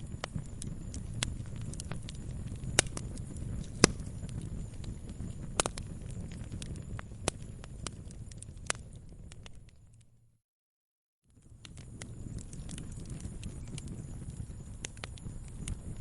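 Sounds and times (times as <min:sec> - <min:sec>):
wood fire crackling: 0:00.0 - 0:10.1, 0:11.3 - 0:16.0.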